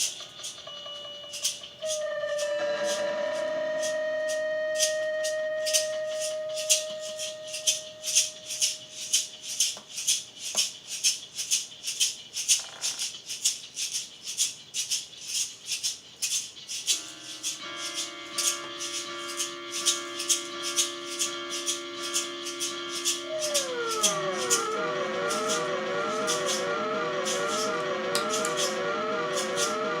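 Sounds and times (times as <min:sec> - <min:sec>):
warbling drone tones: 0:00.0 - 0:09.4, 0:16.9 - 0:30.0
pulsing shaker-like hiss: 0:16.3 - 0:30.0.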